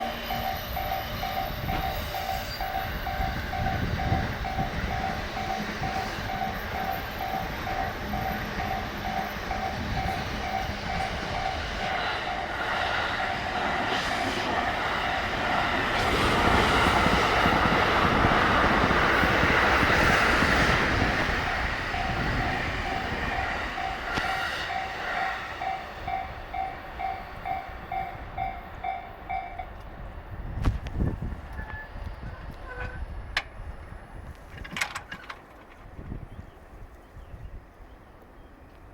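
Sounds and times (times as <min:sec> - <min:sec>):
level crossing alarm ringing: 0:00.0 - 0:12.6, 0:21.3 - 0:29.8
train running and wheel noise: 0:00.0 - 0:38.9.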